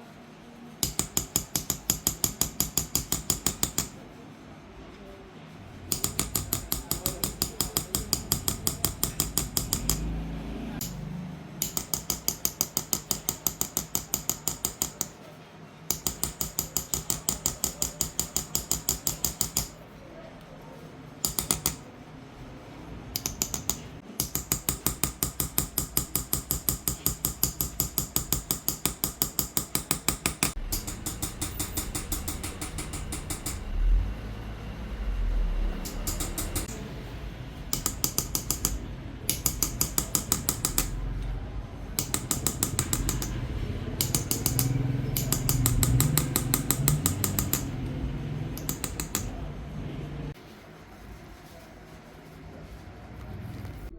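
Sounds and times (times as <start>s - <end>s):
hammer tapping chisel on metal: 0.8s - 4.0s, 5.9s - 10.2s, 10.8s - 11.0s, 11.6s - 15.2s, 15.9s - 19.8s, 21.2s - 21.9s, 23.1s - 33.8s, 35.8s - 36.9s, 37.7s - 41.0s, 42.0s - 48.0s, 48.6s - 49.4s.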